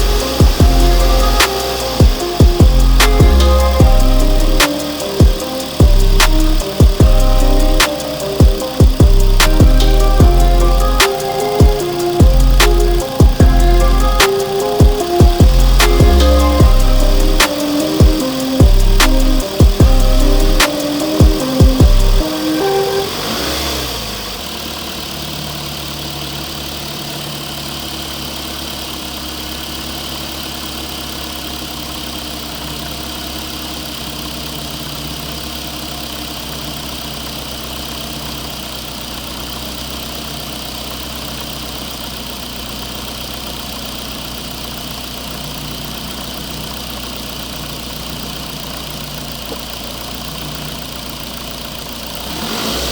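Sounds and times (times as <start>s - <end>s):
toy vehicle engine idling: 0.0s - 52.9s.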